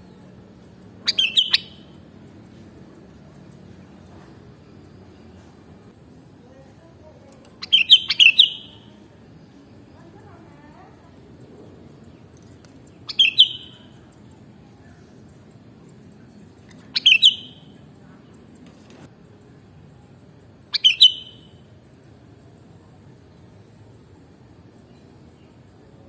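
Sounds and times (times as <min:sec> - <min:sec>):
low background hiss: 0:00.0 - 0:26.0
bulbul calling: 0:00.1 - 0:02.5, 0:07.4 - 0:09.0, 0:11.4 - 0:19.0, 0:20.7 - 0:21.7.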